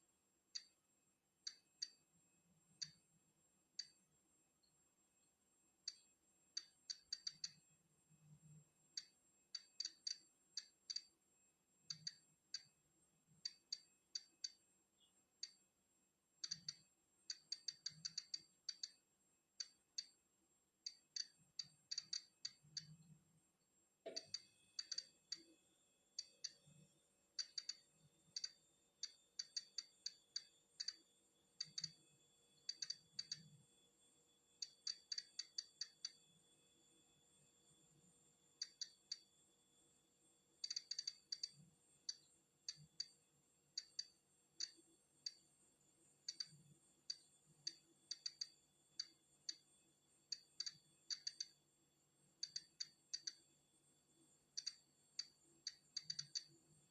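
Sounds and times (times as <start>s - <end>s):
geiger counter clicking: 1.5s - 2.0s, 2.8s - 3.0s, 6.6s - 7.6s, 9.0s - 11.1s, 11.9s - 12.8s, 13.4s - 14.6s, 16.4s - 19.0s, 19.6s - 20.2s, 20.9s - 23.0s, 24.0s - 25.6s, 26.2s - 26.7s, 27.4s - 32.0s, 32.6s - 33.6s, 34.6s - 36.2s, 38.6s - 39.3s, 40.6s - 43.2s, 43.8s - 45.4s, 46.3s - 49.6s, 50.3s - 51.6s, 52.4s - 53.4s, 54.6s - 56.6s.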